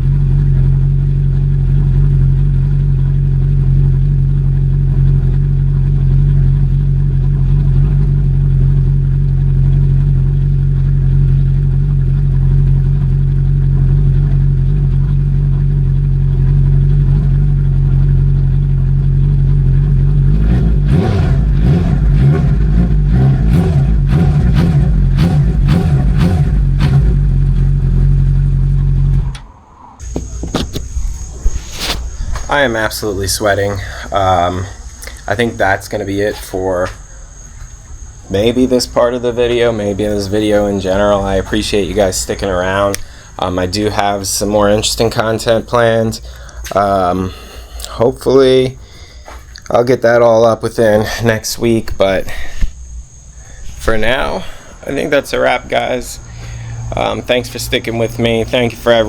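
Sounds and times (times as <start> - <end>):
engine running with low hum: 0.0 - 59.0.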